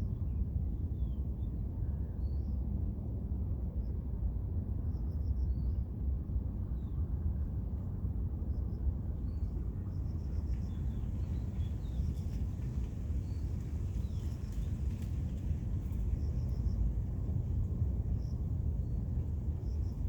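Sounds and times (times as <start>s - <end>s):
steady low rumble: 9.6s - 20.0s.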